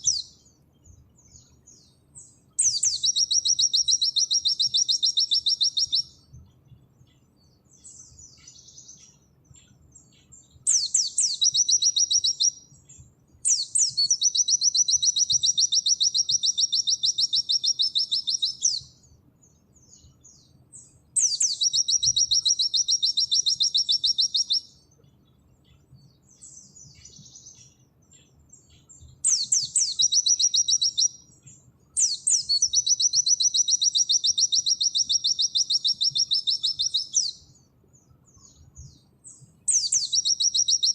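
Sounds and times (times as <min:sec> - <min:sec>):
bird singing fast high trills: 0:00.0 - 0:00.5, 0:01.2 - 0:06.2, 0:10.0 - 0:19.1, 0:20.8 - 0:24.8, 0:28.5 - 0:31.4, 0:32.0 - 0:37.7, 0:39.3 - 0:40.9
soft bird twittering: 0:00.0 - 0:40.9.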